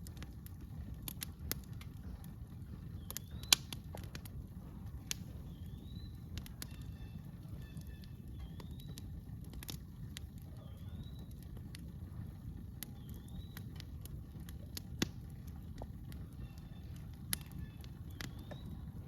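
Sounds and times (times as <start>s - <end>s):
campfire crackling: 0.0s - 19.0s
bird calling: 5.4s - 9.1s, 16.2s - 18.9s.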